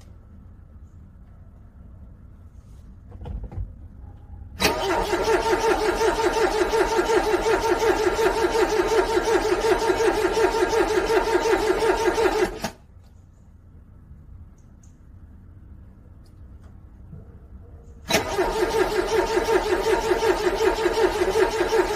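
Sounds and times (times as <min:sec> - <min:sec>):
car engine starter cranking: 0:04.6 - 0:12.8, 0:18.1 - 0:21.9.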